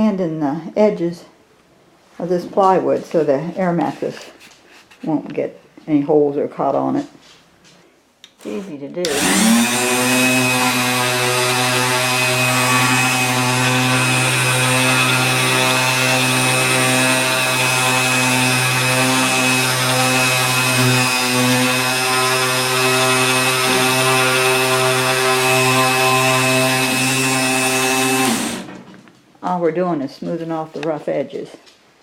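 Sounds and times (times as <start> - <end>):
electric sander running: 8.4 - 28.9.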